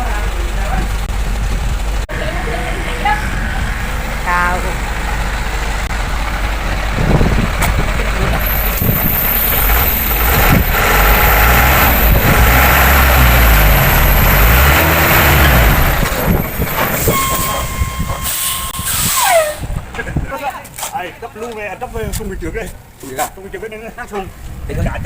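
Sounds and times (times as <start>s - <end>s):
heavy diesel truck engine running: 0.0s - 19.0s
short falling squeal: 15.4s - 19.8s
brief steady tone: 16.6s - 19.5s.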